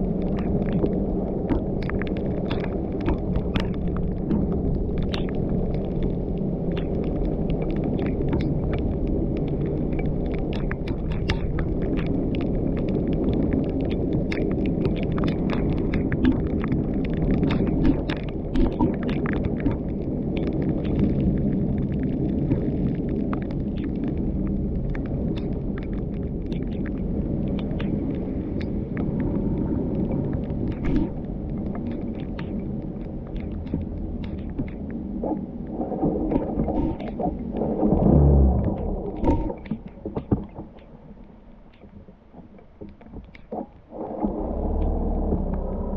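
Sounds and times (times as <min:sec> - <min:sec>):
car engine and tyres rumbling: 0:19.9 - 0:41.2, 0:43.8 - 0:45.9.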